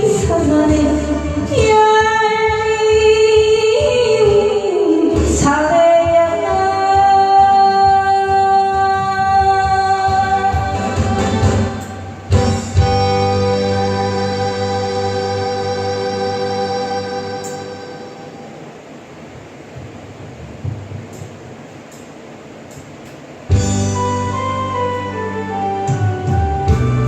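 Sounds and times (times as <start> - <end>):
woman singing: 0.0 - 12.0
instrumental backing music: 0.0 - 18.6, 22.7 - 27.0.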